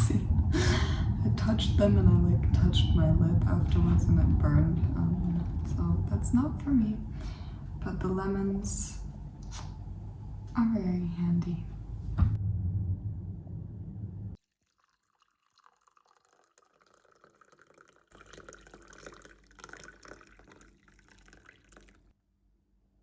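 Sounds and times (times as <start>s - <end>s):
liquid pouring into a glass: 14.4s - 22.1s
liquid rushing: 14.6s - 22.0s.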